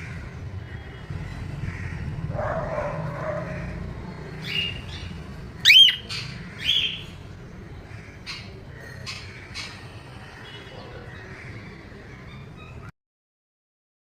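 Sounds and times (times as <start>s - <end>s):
parrots calling: 1.6s - 7.2s.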